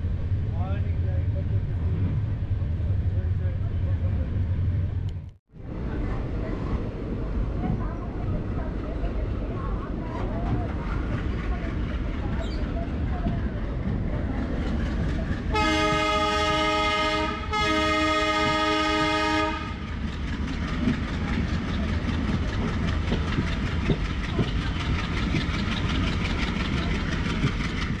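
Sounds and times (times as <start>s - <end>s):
train rumbling at speed: 0.0s - 28.0s
locomotive horn blasts: 15.5s - 19.9s
wheels clattering over rail joints: 19.8s - 28.0s.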